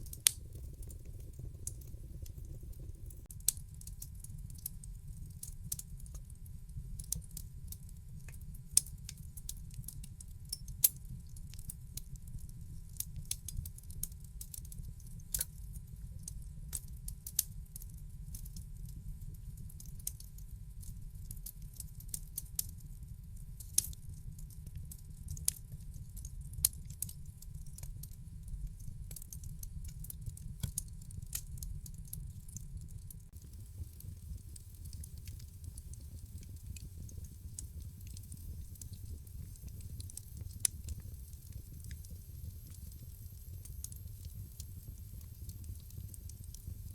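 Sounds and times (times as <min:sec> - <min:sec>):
wood fire crackling and popping: 0:00.0 - 0:06.2, 0:06.9 - 0:17.8, 0:26.4 - 0:46.9
low rumble: 0:33.4 - 0:46.9.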